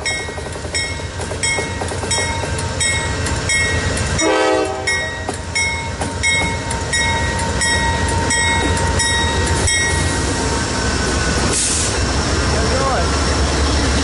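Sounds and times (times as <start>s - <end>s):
crossing signal bell ringing: 0.0s - 10.2s
freight train passing: 0.0s - 14.0s.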